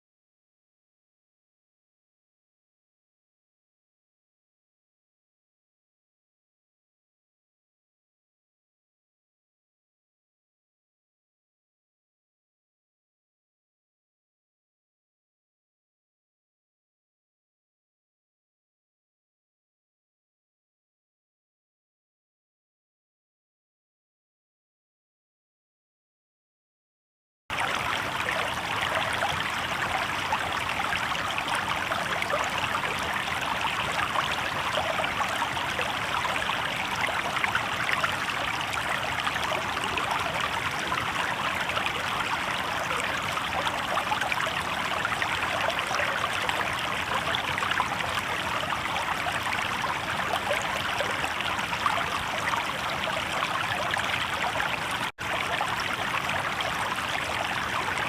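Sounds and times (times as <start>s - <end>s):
river water babbling over rocks: 27.5s - 58.0s.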